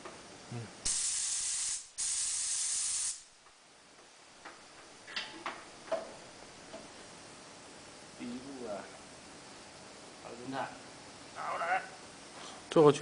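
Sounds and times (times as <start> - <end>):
compressed air hissing: 0.8 - 3.3.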